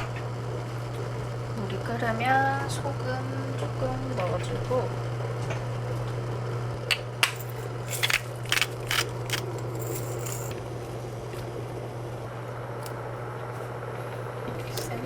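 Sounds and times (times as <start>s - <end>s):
steady low hum: 0.0s - 15.0s
sharp clicks and crackles: 6.9s - 10.0s.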